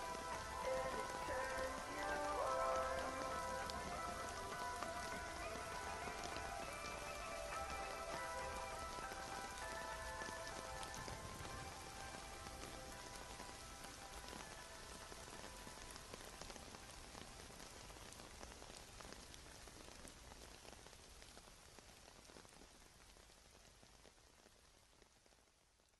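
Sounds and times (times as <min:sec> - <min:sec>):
faint music: 0:00.0 - 0:18.2
raindrop ticks: 0:00.0 - 0:25.9
steady rain falling: 0:00.0 - 0:25.9.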